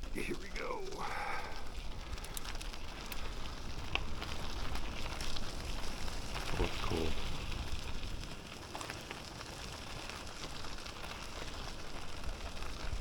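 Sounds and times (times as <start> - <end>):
bicycle tyres rolling on road: 0.0 - 13.0
faint crackles and ticks: 0.0 - 13.0.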